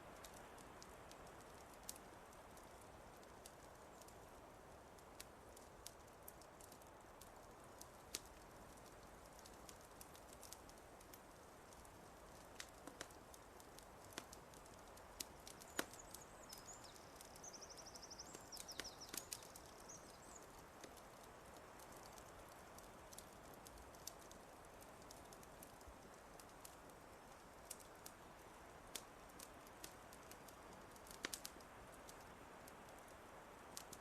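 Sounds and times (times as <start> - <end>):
wood fire crackling: 0.0 - 34.0
small bird singing a trill: 15.9 - 20.5.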